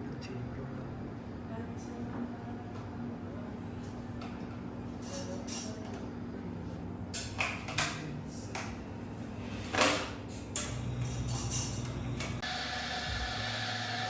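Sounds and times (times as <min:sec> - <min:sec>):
steady low hum: 0:10.6 - 0:13.5.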